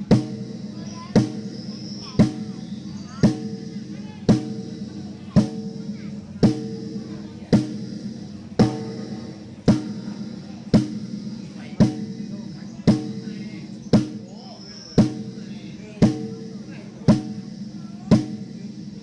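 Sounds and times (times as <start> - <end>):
drum hits through pa: 0.0 - 19.0.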